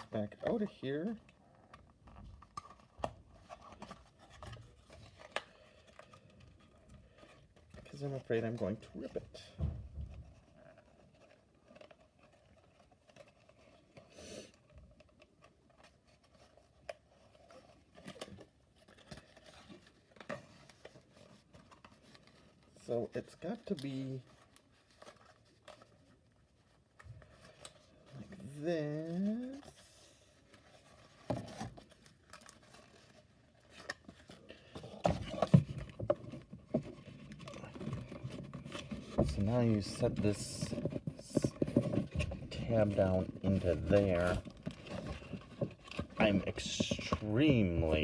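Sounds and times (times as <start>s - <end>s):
cardboard rustling and scraping: 0.0s - 48.0s
cardboard tabs scraping and clicking: 26.8s - 48.0s.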